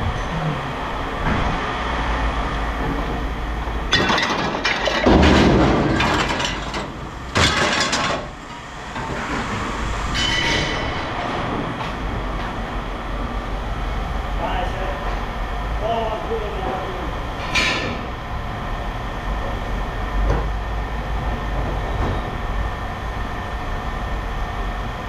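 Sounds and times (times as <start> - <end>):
low machine rumble: 0.0 - 25.0
scrap metal clattering onto pile: 3.9 - 9.5.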